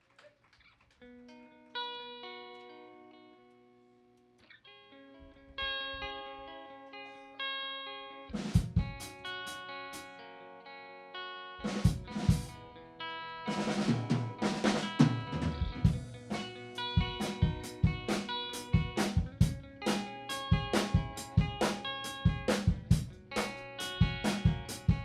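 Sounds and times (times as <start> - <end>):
ringing guitar chords: 1.1 - 25.0
drum kit: 8.3 - 10.1, 11.6 - 12.6, 13.5 - 25.0
bass guitar: 8.3 - 10.2, 11.6 - 12.8, 13.6 - 25.0.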